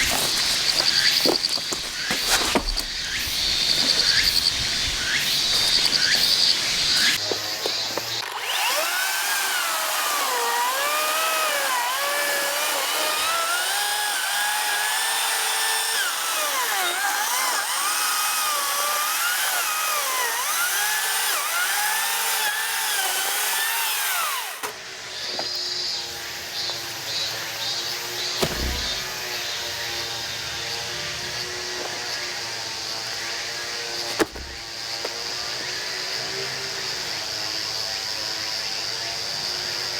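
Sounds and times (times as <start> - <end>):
chainsaw cutting through log: 0.0 - 25.0, 28.2 - 29.6.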